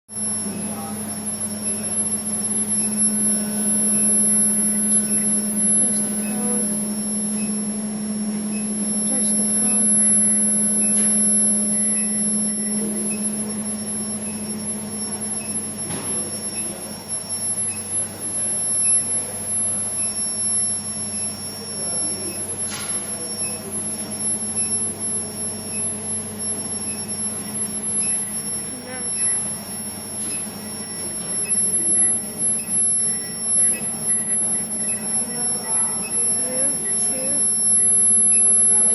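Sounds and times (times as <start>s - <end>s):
high-pitched furnace whine: 0.1s - 38.9s
low electrical hum: 0.2s - 38.9s.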